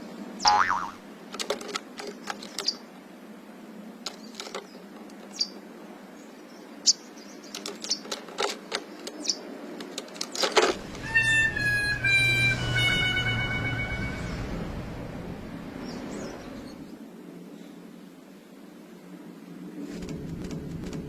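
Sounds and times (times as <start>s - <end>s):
small birds chirping: 1.8s - 10.6s, 15.7s - 17.0s
low hum: 10.8s - 17.0s.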